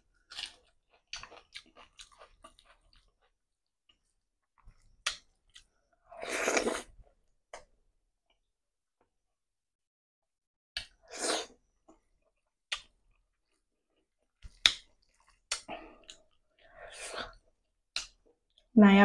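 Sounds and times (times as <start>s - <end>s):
wet chewing: 0.2s - 5.7s, 12.2s - 18.6s.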